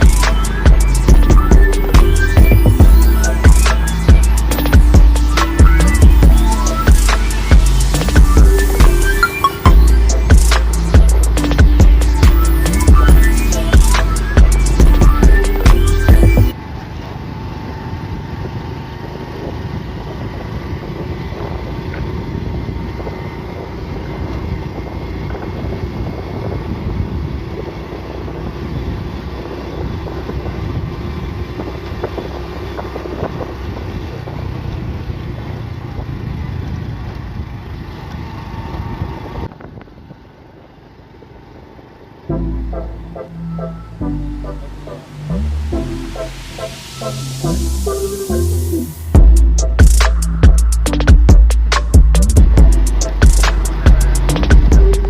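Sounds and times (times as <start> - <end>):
wind noise on microphone: 0.0 - 40.3
motorcycle engine running: 0.0 - 47.8, 48.8 - 55.0.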